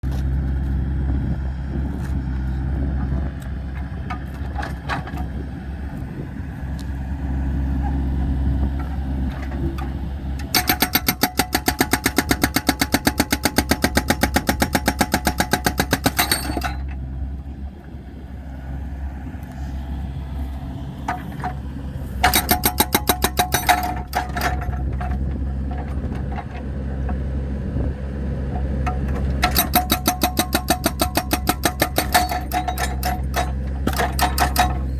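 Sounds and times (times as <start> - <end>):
diesel engine running: 0.0 - 34.9
fast clattering strikes: 10.4 - 16.8, 22.2 - 24.7, 29.4 - 34.8.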